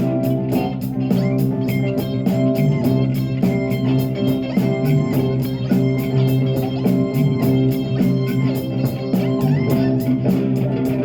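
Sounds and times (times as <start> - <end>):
bass guitar: 0.0 - 11.0
drum beat: 0.0 - 11.0
electric guitar: 0.0 - 11.0.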